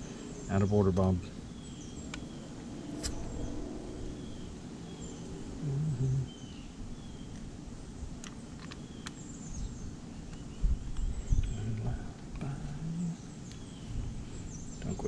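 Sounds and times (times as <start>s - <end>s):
low hum: 0.0s - 15.0s
small birds chirping: 0.0s - 15.0s.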